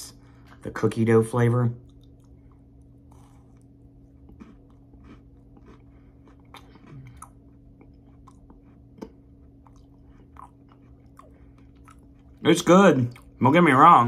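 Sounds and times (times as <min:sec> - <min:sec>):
steady low hum: 0:00.0 - 0:14.0
chewing with mouth clicks: 0:01.8 - 0:12.4, 0:13.0 - 0:13.4.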